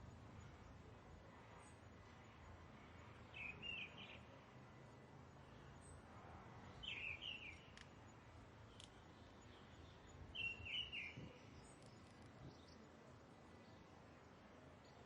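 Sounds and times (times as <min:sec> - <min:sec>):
faint background noise: 0:00.0 - 0:15.0
bird chirping: 0:03.3 - 0:04.2, 0:06.7 - 0:07.7, 0:09.4 - 0:12.9.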